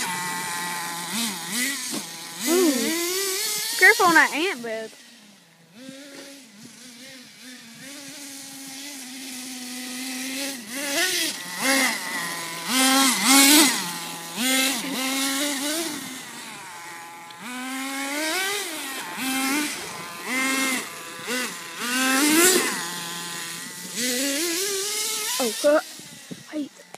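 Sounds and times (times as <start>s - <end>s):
rc truck motor revving: 0.0s - 26.9s.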